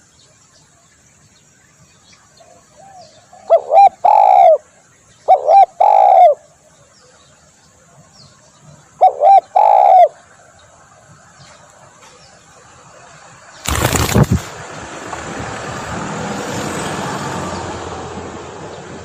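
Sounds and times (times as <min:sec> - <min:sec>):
dove cooing: 0:02.8 - 0:04.7, 0:05.3 - 0:06.4, 0:09.0 - 0:10.2
loud burst of noise: 0:13.6 - 0:14.7.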